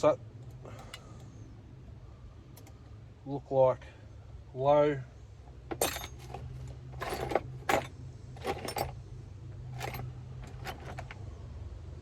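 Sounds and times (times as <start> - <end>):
metal tools clinking and rattling: 5.7 - 9.0, 9.6 - 11.2.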